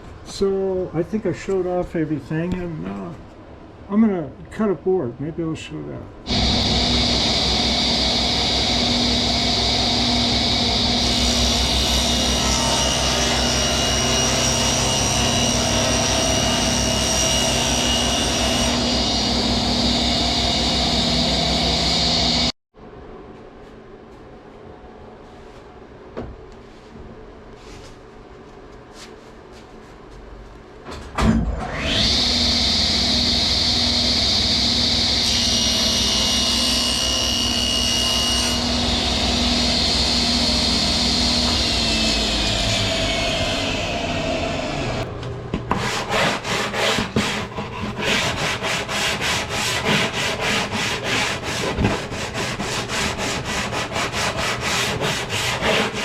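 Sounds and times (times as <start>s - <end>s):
power saw whining: 6.3s - 22.5s, 31.5s - 45.1s.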